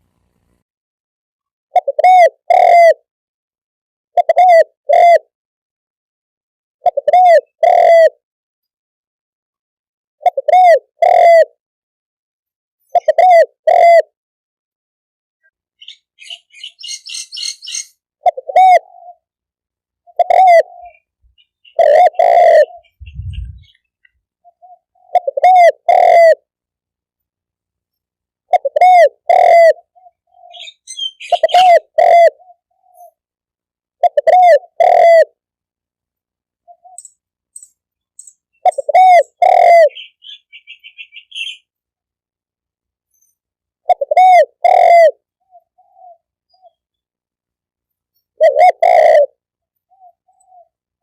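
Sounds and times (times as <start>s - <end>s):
dove cooing: 1.8s - 3.0s, 4.2s - 5.2s, 6.8s - 8.2s, 10.2s - 11.6s, 13.0s - 14.1s, 16.2s - 19.3s, 20.0s - 23.8s, 24.4s - 26.5s, 28.5s - 33.2s, 34.0s - 35.4s, 38.6s - 41.6s, 43.9s - 46.8s, 48.4s - 50.8s
small birds chirping: 15.8s - 19.3s, 20.0s - 26.0s, 29.3s - 33.2s, 36.6s - 41.7s, 43.0s - 44.1s, 45.4s - 47.1s, 49.6s - 50.9s.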